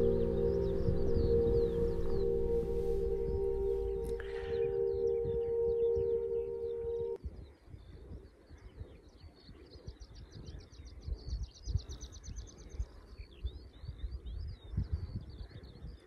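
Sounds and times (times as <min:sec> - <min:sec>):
bird trill: 0:00.0 - 0:07.2
small birds singing: 0:00.0 - 0:16.0
wind buffeting microphone: 0:00.0 - 0:16.0.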